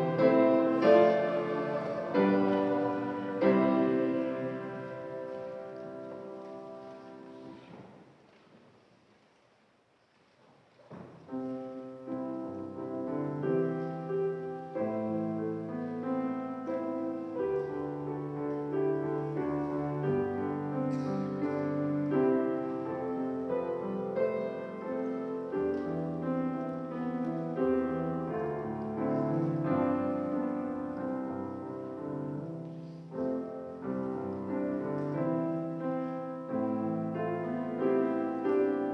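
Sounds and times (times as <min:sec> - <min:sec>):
slow keyboard chords: 0:00.0 - 0:07.7.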